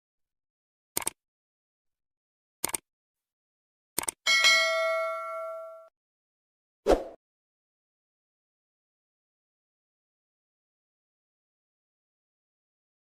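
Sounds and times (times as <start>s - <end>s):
short clicks: 1.0s - 1.2s, 2.6s - 2.9s, 4.0s - 4.2s
bell ding: 4.3s - 5.9s.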